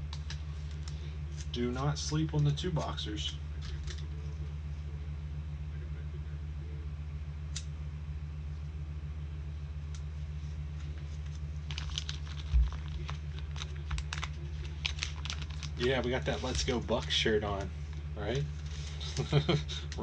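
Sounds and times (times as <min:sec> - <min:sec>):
cards rustling: 0:00.0 - 0:04.3, 0:10.6 - 0:20.0
steady low hum: 0:00.0 - 0:20.0.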